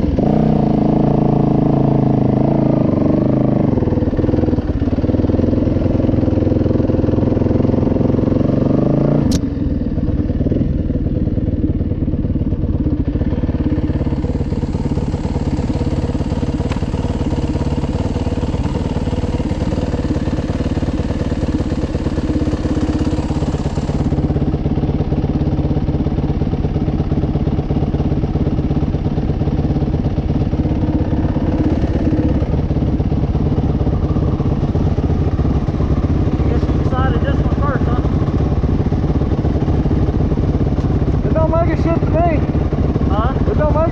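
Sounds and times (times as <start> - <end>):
dirt bike engine running: 0.0 - 43.9
sharp click: 9.3 - 9.5.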